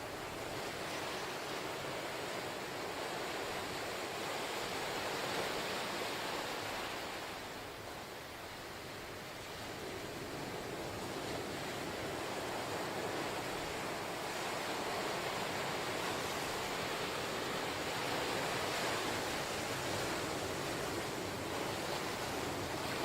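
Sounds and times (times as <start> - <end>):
ocean waves breaking: 9.5 - 23.0.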